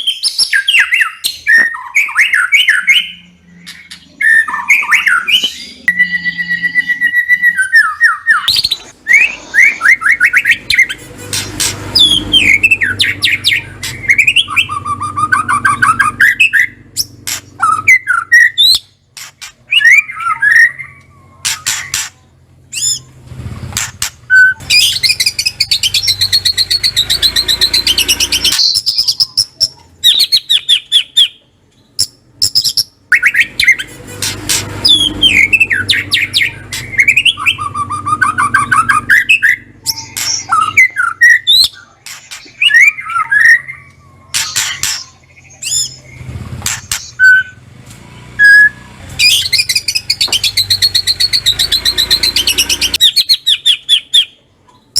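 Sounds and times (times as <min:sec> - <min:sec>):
bird high chattering: 0:00.0 - 0:23.1, 0:32.0 - 0:47.4
bird whistling and trilling: 0:00.0 - 0:23.1, 0:23.8 - 0:31.4, 0:32.0 - 0:47.6, 0:48.4 - 0:54.4.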